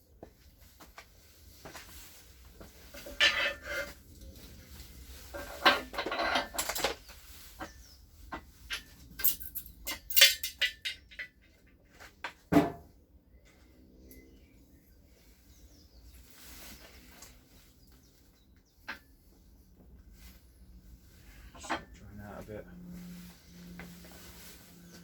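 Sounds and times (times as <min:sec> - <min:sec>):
metal parts clinking and scraping: 0:03.0 - 0:04.0, 0:05.3 - 0:07.1, 0:08.7 - 0:11.5.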